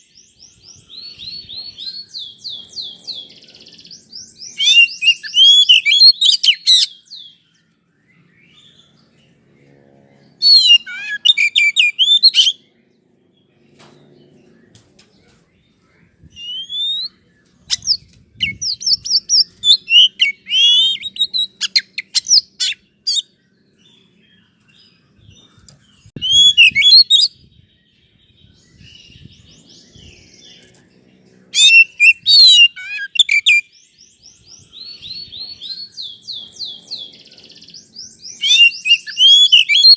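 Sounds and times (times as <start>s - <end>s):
bird singing whistled phrases: 0.0s - 8.8s, 10.4s - 12.6s, 16.3s - 23.3s, 26.2s - 27.5s, 31.6s - 37.0s, 37.7s - 39.9s.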